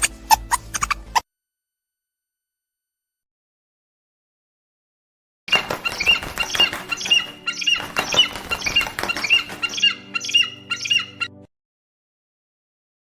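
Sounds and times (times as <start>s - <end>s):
animal squeaky calls: 5.5s - 11.5s.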